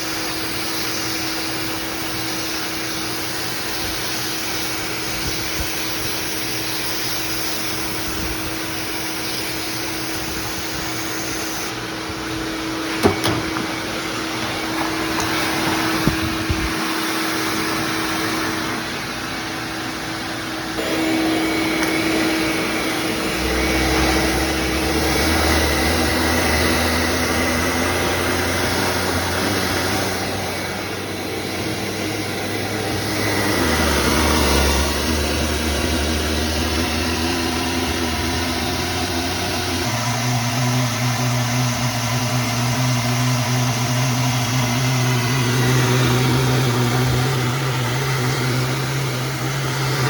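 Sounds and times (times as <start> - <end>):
shop vac motor whine: 0.0 - 50.0
deep hum: 20.8 - 40.6.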